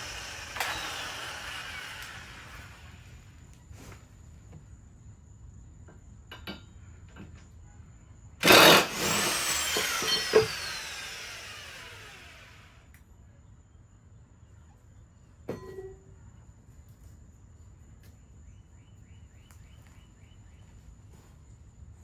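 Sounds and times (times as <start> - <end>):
power tool motor whining: 0.0 - 3.1, 8.4 - 12.8.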